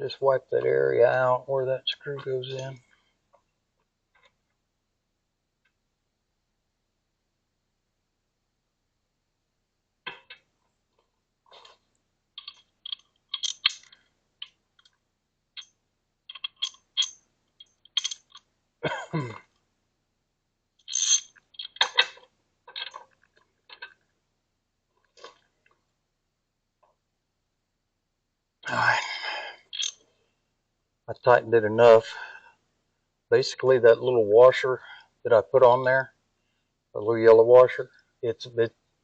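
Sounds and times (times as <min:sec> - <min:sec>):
small metallic clicks: 0:11.6 - 0:15.0, 0:15.6 - 0:18.5, 0:20.8 - 0:24.1, 0:29.7 - 0:30.0
metal scraping: 0:20.9 - 0:23.0.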